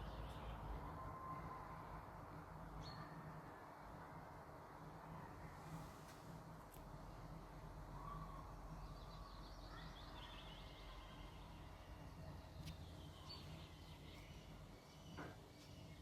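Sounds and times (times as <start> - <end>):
songbird chirps: 0.0 - 1.7, 7.9 - 16.0
low steady background rumble: 0.0 - 16.0.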